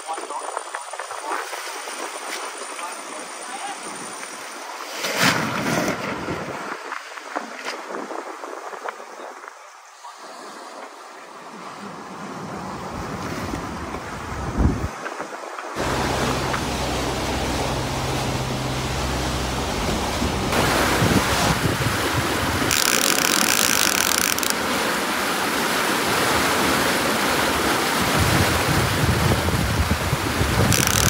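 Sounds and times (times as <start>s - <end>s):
wind and sea rushing: 0.0s - 31.0s
wind buffeting microphone: 12.5s - 15.2s, 15.8s - 22.7s, 28.0s - 31.0s
low steady hum: 15.8s - 23.5s.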